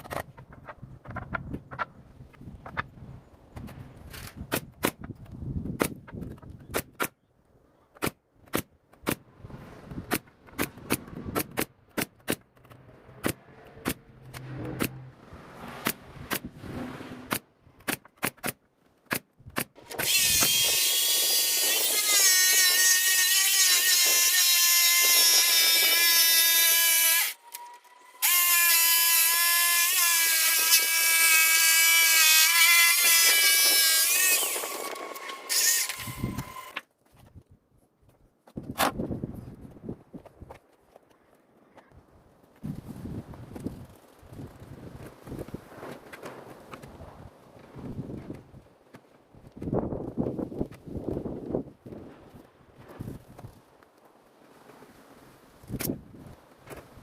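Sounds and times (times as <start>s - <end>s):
power tool whining: 19.8s - 36.8s.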